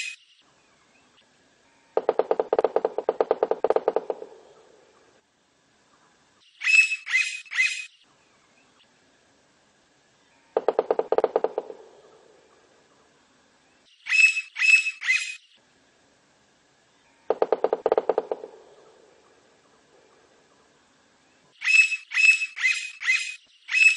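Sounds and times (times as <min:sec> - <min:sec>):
woodpecker rattling call: 0:02.0 - 0:05.1, 0:06.6 - 0:07.9, 0:10.5 - 0:12.6, 0:14.0 - 0:15.5, 0:17.3 - 0:19.5, 0:21.6 - 0:23.9
woodpecker high notes: 0:06.6 - 0:07.9, 0:14.0 - 0:15.4, 0:21.6 - 0:23.9.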